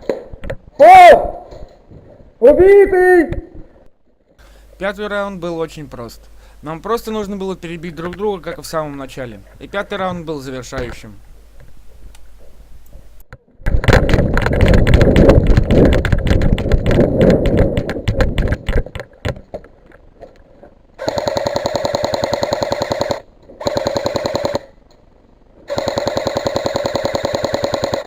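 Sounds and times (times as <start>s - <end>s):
airsoft rifle firing full auto: 21.0s - 24.8s, 25.7s - 28.0s.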